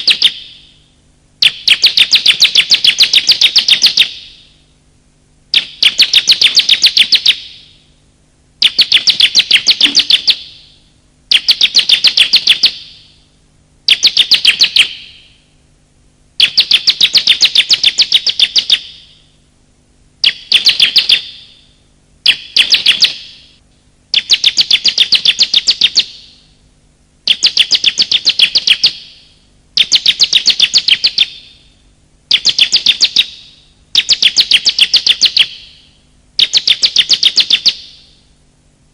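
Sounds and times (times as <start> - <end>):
bird chattering calls: 8.6 - 10.7, 20.2 - 21.6, 22.2 - 23.5.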